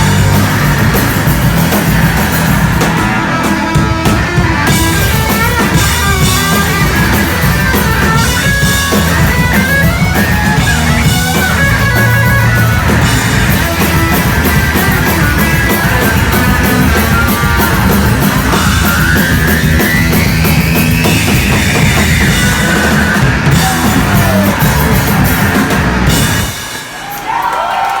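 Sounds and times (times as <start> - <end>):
distorted electric guitars: 0.0 - 27.3
pounding drum kit: 0.0 - 28.0.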